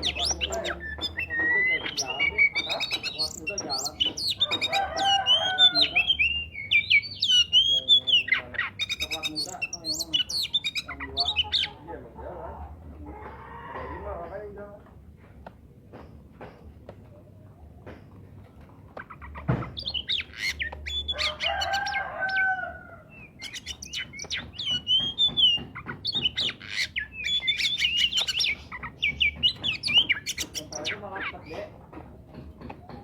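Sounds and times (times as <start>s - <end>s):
bird singing chirps and whistles: 0.0s - 11.7s, 19.7s - 22.0s, 23.1s - 31.6s.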